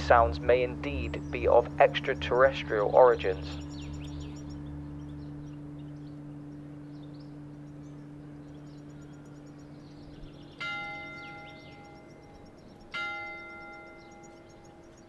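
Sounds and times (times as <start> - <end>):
steady low hum: 0.0 - 15.0
faint bird chirps: 0.4 - 15.0.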